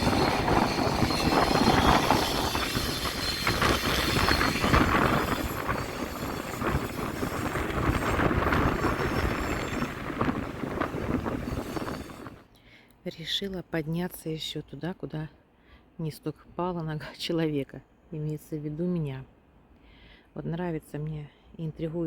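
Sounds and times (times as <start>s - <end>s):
wind on microphone: 0.0s - 12.4s.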